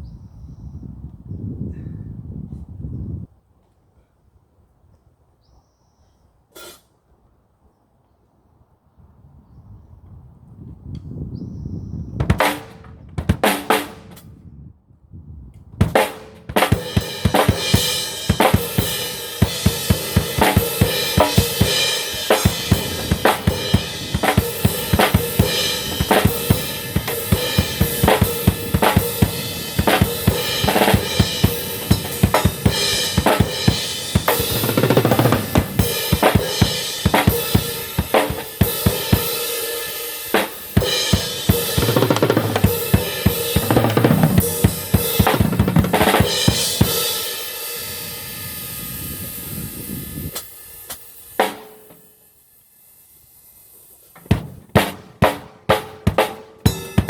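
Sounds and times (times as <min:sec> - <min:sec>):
drums beating: 0:12.2 - 0:14.2, 0:15.8 - 0:52.0, 0:54.2 - 0:57.0.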